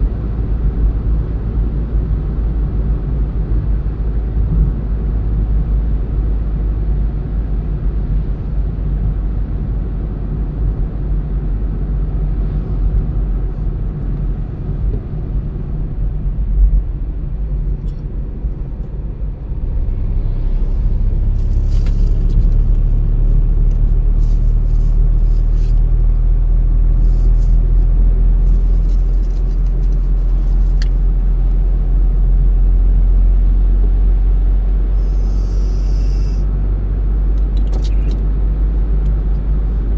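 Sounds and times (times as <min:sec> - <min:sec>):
car road and engine rumble: 0:00.0 - 0:39.9
high crackling hiss: 0:35.0 - 0:36.4.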